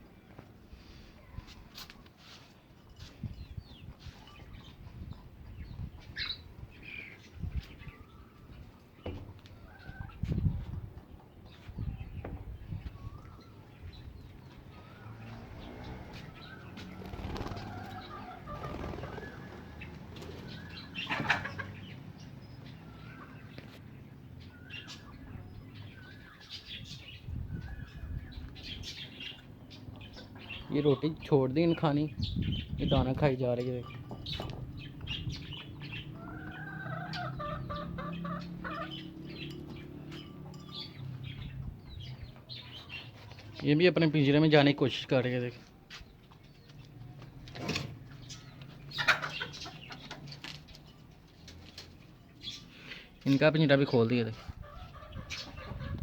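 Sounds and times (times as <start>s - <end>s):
birds chirping: 0.0s - 56.0s
chickens clucking: 8.6s - 12.0s, 16.1s - 23.7s, 27.5s - 31.9s, 33.1s - 44.4s, 45.6s - 56.0s
doves cooing: 14.4s - 23.6s, 33.9s - 43.6s.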